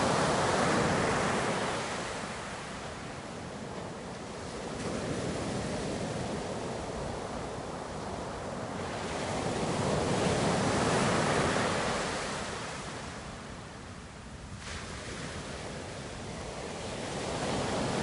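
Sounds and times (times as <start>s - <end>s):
ocean surf washing in: 0.0s - 13.4s.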